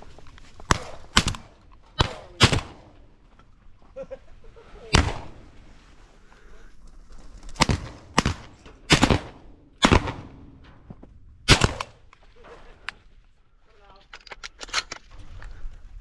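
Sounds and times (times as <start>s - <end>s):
shotgun shots: 0.7s - 3.0s, 4.9s - 5.4s, 7.6s - 10.6s, 11.4s - 12.1s.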